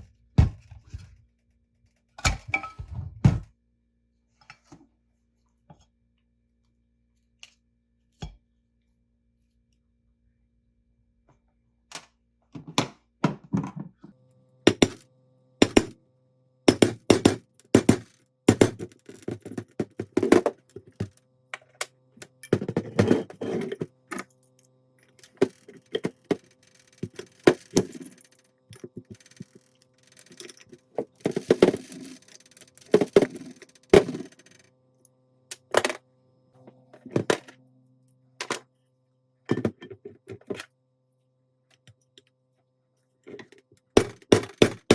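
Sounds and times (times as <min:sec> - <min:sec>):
faint steady hum: 0:13.3 - 0:44.9.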